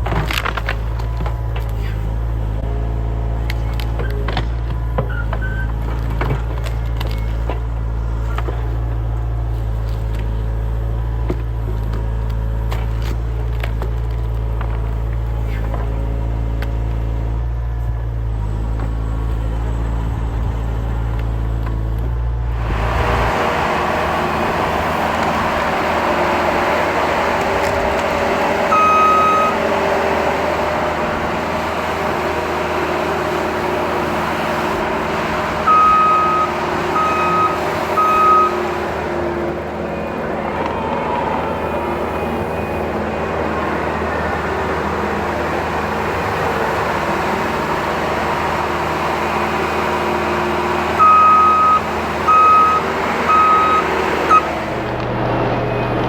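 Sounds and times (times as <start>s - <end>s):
heavy machine engine running: 0.0s - 56.0s
backup alarm beeping: 28.7s - 29.8s, 35.7s - 38.8s, 51.0s - 54.5s.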